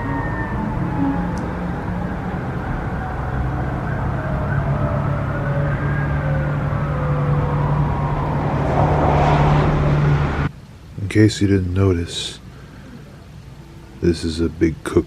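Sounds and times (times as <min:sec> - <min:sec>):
siren wailing: 0:00.0 - 0:10.5.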